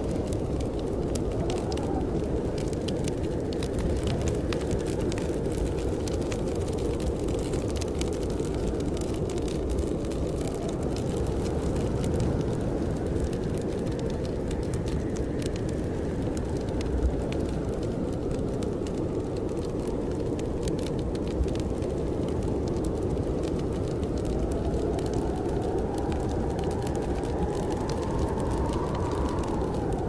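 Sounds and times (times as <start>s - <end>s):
wood fire crackling and popping: 0.0s - 30.0s
strong wind rushing: 23.2s - 30.0s.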